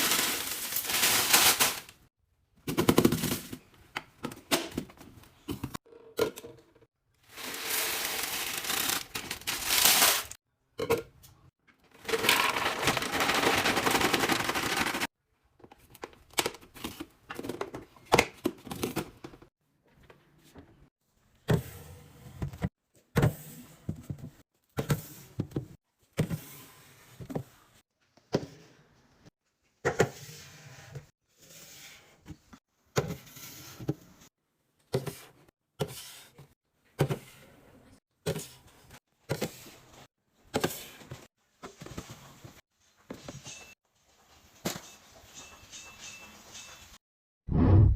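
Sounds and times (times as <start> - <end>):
food packaging rustling: 0.0 - 2.0, 7.2 - 10.4, 11.9 - 15.1.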